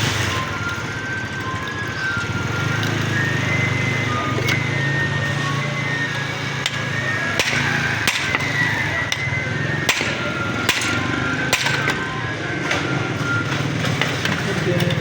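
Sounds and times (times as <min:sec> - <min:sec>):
hammer blows: 0:04.0 - 0:14.5.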